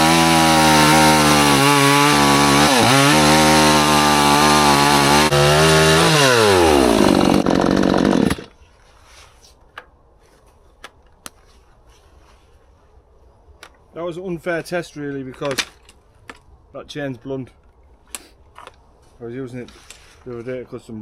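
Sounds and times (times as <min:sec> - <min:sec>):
chainsaw cutting logs: 0:00.0 - 0:08.6.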